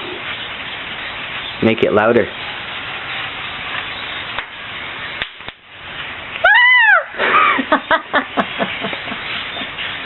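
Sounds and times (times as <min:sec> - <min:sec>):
drawn-out rising and falling call: 0:00.0 - 0:10.0
flock of blackbirds chattering: 0:07.7 - 0:10.0.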